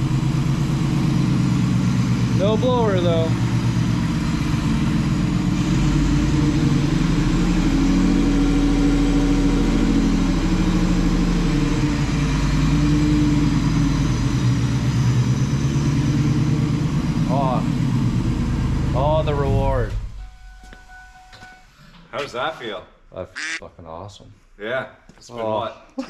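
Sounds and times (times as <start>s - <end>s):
car engine idling: 0.0s - 6.4s.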